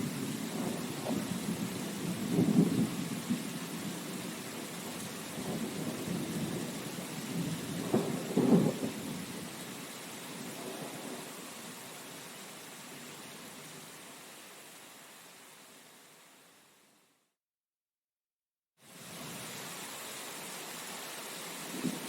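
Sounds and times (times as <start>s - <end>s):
thunder rumbling: 0.0s - 9.2s
steady rain: 0.0s - 17.2s, 18.8s - 22.0s.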